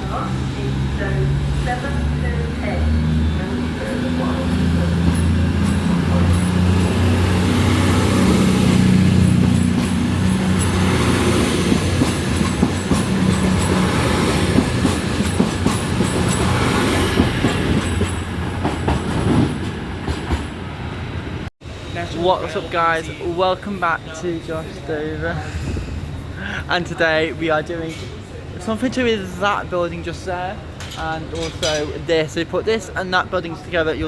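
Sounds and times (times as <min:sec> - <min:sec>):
train engine hum: 0:00.0 - 0:31.5
train wheels clattering over rail joints: 0:03.9 - 0:20.6.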